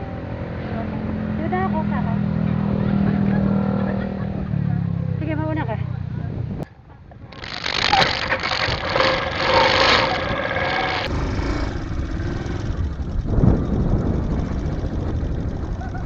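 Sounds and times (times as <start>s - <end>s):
motorcycle engine running: 7.3s - 16.0s.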